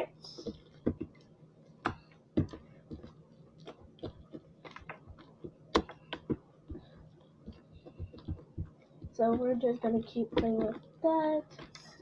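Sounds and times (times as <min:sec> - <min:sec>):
slime squelching: 0:00.0 - 0:12.0.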